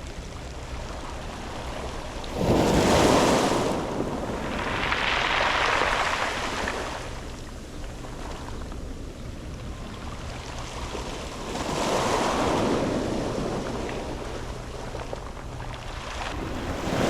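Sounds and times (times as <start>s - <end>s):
waves washing onto pebble beach: 1.1s - 7.4s, 11.4s - 15.2s.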